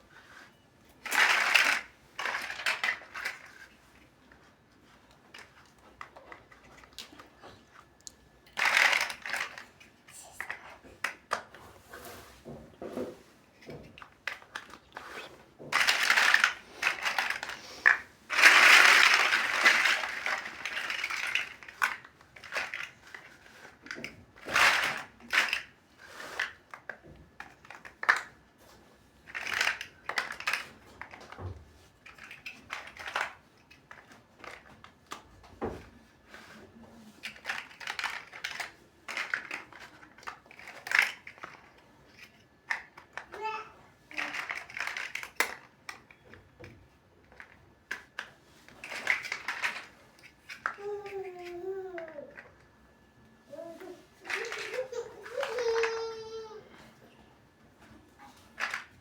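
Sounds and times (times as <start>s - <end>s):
plastic crinkling and rustling: 0.1s - 52.6s, 53.5s - 56.6s
plastic pieces clicking: 1.0s - 3.8s, 5.3s - 11.5s, 13.6s - 25.8s, 26.4s - 28.4s, 29.2s - 31.4s, 32.0s - 35.2s, 37.2s - 52.5s, 54.2s - 56.6s, 58.5s - 59.0s.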